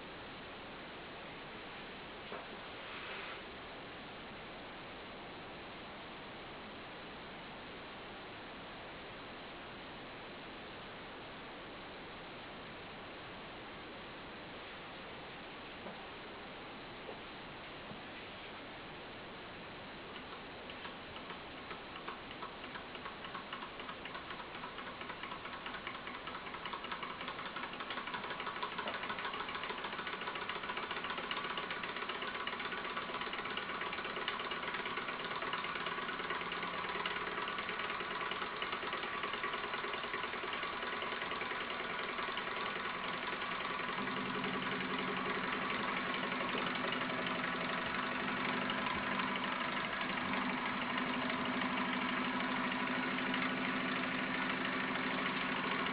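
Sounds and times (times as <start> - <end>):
stirling engine clattering: 20.2 - 55.9.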